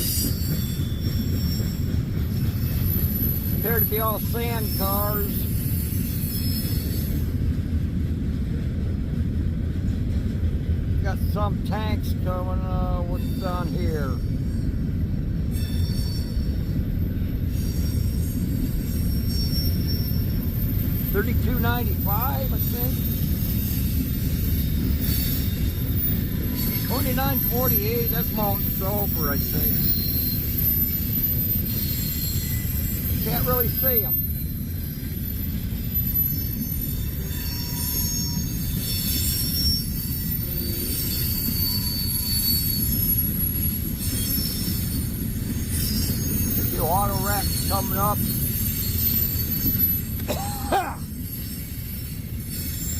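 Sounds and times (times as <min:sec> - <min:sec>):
high-pitched wheel squeal: 0:00.0 - 0:07.5, 0:12.9 - 0:14.8, 0:15.5 - 0:52.9
train wheels rumbling on rail: 0:00.0 - 0:52.9.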